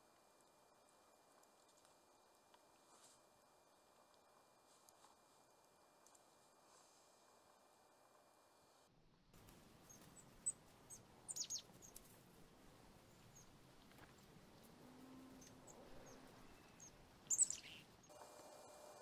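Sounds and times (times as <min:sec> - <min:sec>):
small birds chirping: 0:09.8 - 0:12.1, 0:12.9 - 0:18.1.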